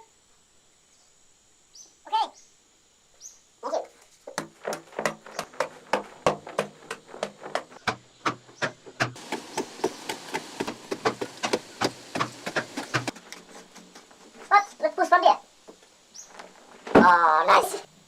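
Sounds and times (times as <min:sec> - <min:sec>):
hand tool knocking: 0:04.3 - 0:14.1.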